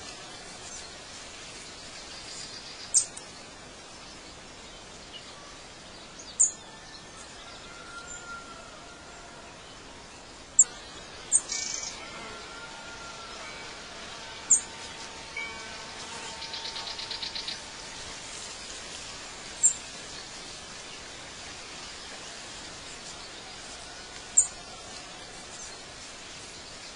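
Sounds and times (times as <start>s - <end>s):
faint hiss: 0.0s - 26.9s
bird trill: 10.6s - 12.3s, 14.5s - 14.8s, 15.4s - 17.8s
birds chirping: 14.5s - 26.9s.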